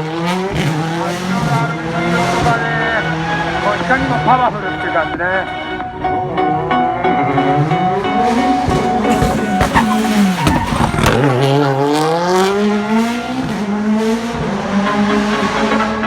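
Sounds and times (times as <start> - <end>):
rally car engine accelerating: 0.0 - 16.0
engine cracks and pops: 8.5 - 13.2.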